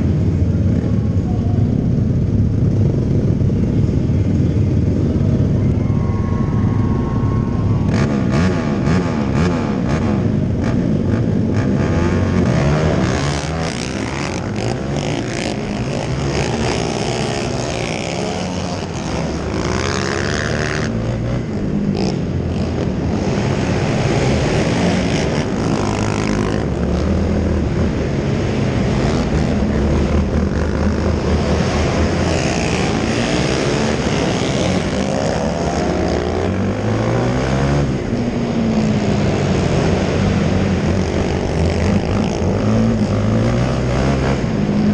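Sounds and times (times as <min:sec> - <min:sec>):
quad engines buzzing: 0:00.0 - 0:44.9.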